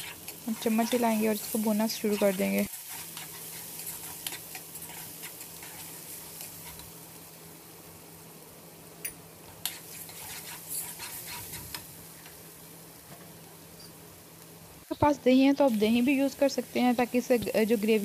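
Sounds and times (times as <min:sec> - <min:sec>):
masala sizzling in hot oil: 0:00.0 - 0:18.0
spatula scraping and tapping pan: 0:01.9 - 0:07.0, 0:09.5 - 0:12.4.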